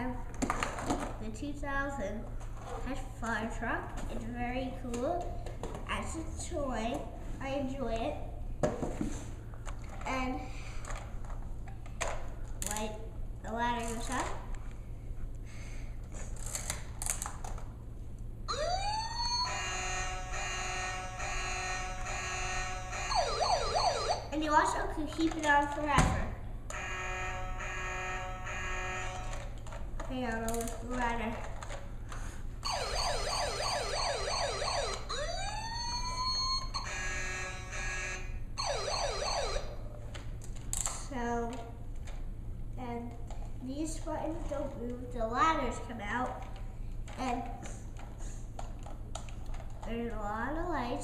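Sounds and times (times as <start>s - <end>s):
toy siren wail: 18.5s - 24.3s, 26.7s - 29.4s, 32.6s - 39.8s
buzzing horn tone: 19.4s - 23.4s, 26.7s - 29.5s, 36.2s - 38.4s.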